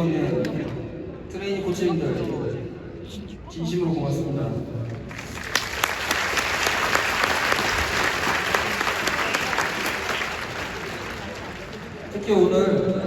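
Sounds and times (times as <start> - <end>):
crowd applauding: 5.1 - 12.2.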